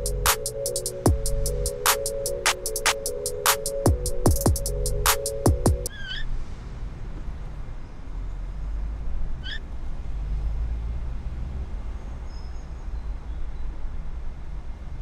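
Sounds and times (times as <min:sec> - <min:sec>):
car idling: 0:00.0 - 0:01.9.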